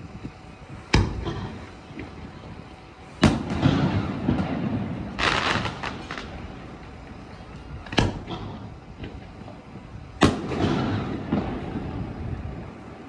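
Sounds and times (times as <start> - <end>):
fireworks crackling: 0.0 - 13.0
fireworks bangs: 3.2 - 12.9.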